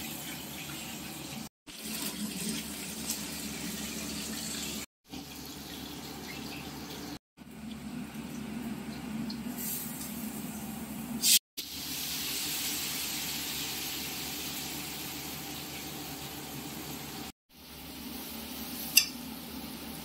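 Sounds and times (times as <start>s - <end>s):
spices sizzling in oil: 4.2s - 20.0s.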